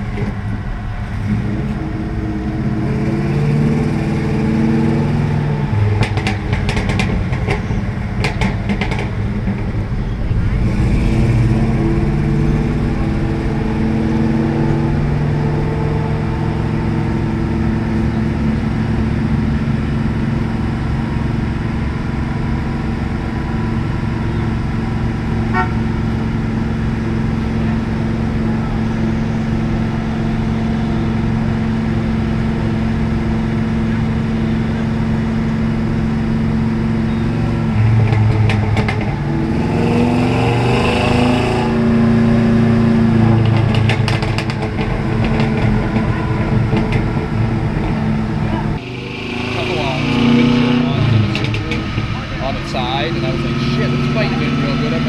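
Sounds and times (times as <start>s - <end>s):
diesel truck engine droning: 0.0s - 55.0s.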